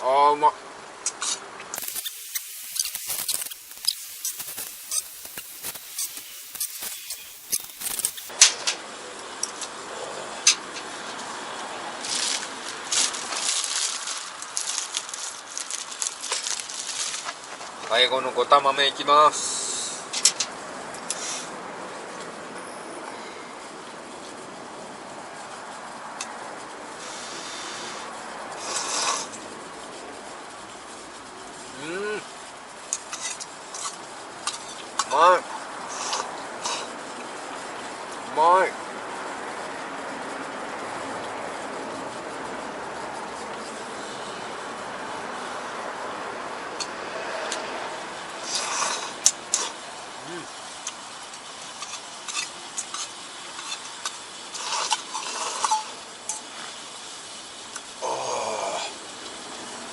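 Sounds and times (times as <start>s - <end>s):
sharp clicks: 1.8s - 8.3s.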